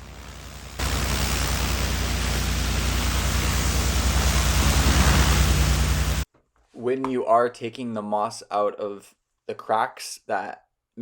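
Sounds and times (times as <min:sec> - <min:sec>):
engine low hum: 0:00.0 - 0:06.2
pressure washer spray hiss: 0:00.0 - 0:06.2.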